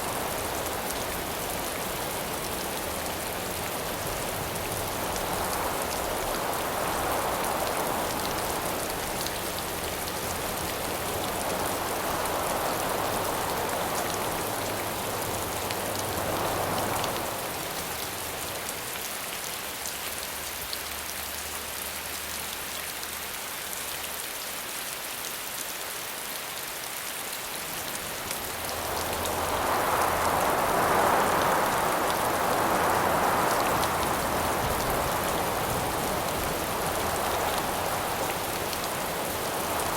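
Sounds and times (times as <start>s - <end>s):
wind gusts: 0.0s - 19.1s, 27.4s - 39.9s
steady rain falling: 0.0s - 39.9s.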